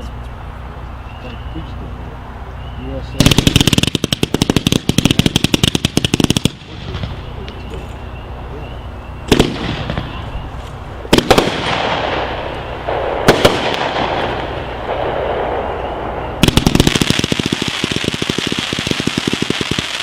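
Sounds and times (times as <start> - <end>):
rapid firework pops: 3.2 - 7.6, 9.3 - 10.2, 11.1 - 12.2, 12.8 - 15.7, 16.4 - 20.0
firework bangs: 3.2 - 7.8, 9.2 - 20.0
firework crackling: 3.2 - 8.1, 9.2 - 20.0.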